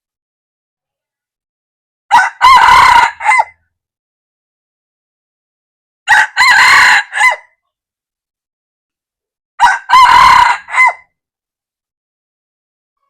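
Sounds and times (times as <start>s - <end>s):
rooster crowing: 2.1s - 3.6s, 6.1s - 7.5s, 9.6s - 11.1s.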